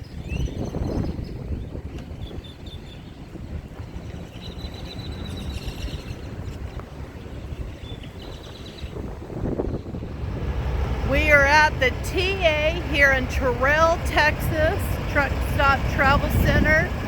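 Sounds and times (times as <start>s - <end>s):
low rumble: 9.0s - 17.0s.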